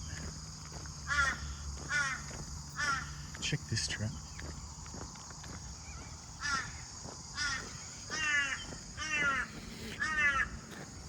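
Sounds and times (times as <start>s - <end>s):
bird cawing: 1.0s - 3.4s, 5.7s - 11.0s.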